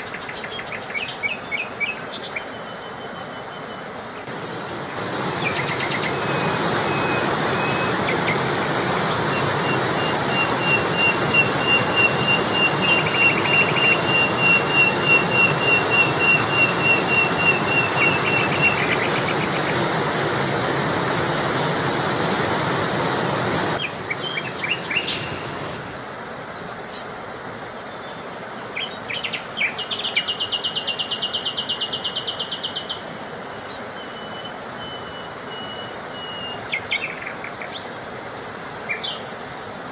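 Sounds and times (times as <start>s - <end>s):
birds singing: 0.0s - 20.0s, 23.8s - 27.1s, 27.8s - 39.3s
fast buzzy bird trill: 0.0s - 20.1s, 23.7s - 25.9s
steady rushing noise: 4.0s - 26.4s.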